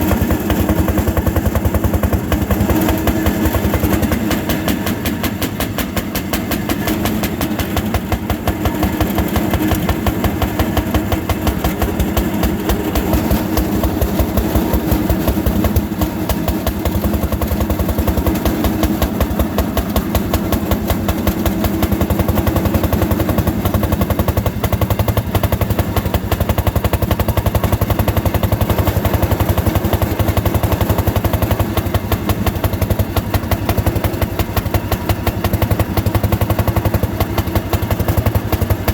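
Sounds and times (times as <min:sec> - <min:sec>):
two-stroke engine running hard: 0:00.0 - 0:38.9.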